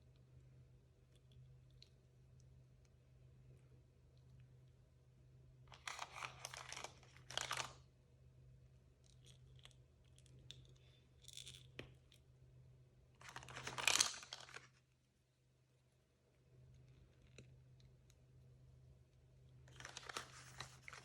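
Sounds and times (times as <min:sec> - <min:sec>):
packaging crinkling: 0:05.7 - 0:07.8, 0:13.2 - 0:14.8, 0:19.7 - 0:21.0
packaging tearing: 0:05.8 - 0:07.8, 0:13.2 - 0:14.7, 0:19.7 - 0:21.0.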